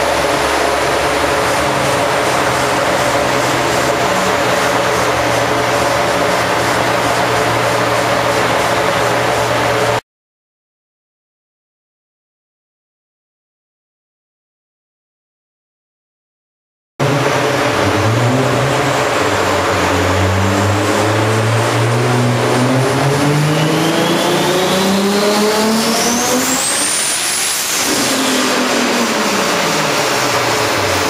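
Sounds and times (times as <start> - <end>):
car engine at full throttle: 0.0 - 10.0, 17.0 - 31.0
thin high turbo whine: 0.0 - 10.0, 17.0 - 31.0.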